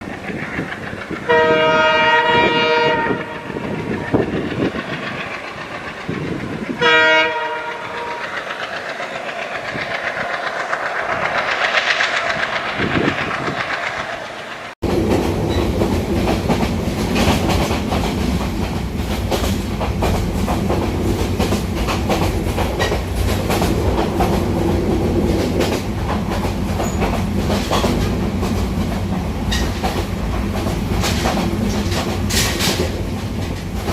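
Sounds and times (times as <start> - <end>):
train passing with rushing noise: 0.0 - 33.9
train rumble and wheel clatter: 0.0 - 33.9
train horn blasts: 1.3 - 3.8, 6.8 - 8.3.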